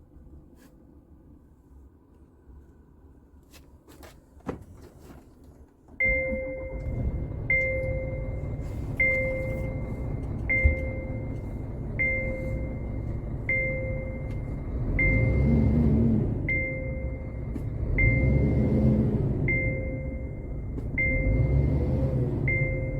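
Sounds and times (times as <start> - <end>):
two-tone warning chime: 6.0 - 15.7, 16.5 - 18.8, 19.4 - 21.8, 22.4 - 22.9
truck diesel engine running: 6.1 - 22.9.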